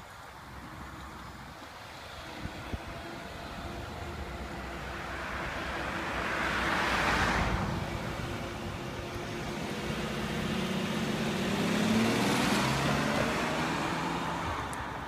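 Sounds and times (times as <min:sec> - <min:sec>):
car engine driving off: 0:02.0 - 0:15.0.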